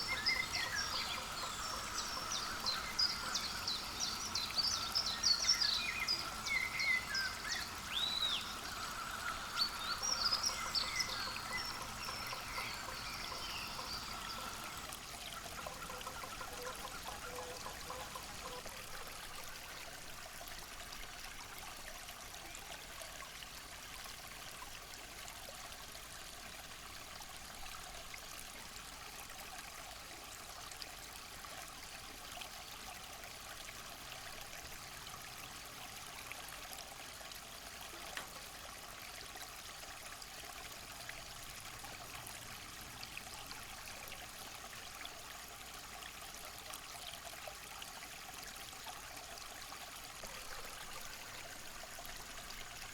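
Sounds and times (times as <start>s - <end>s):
running water hissing: 0.0s - 19.3s
faint ticks: 38.1s - 38.4s.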